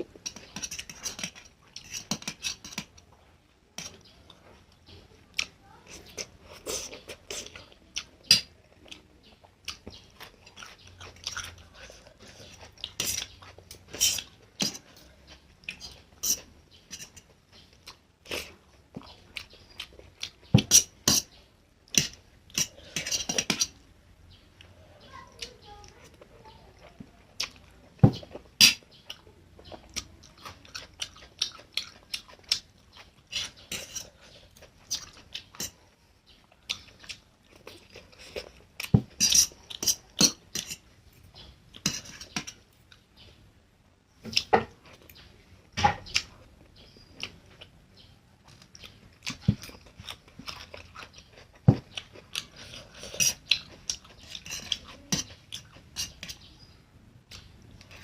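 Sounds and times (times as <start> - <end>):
chewing mouth sounds: 26.8 - 35.8, 48.4 - 56.5.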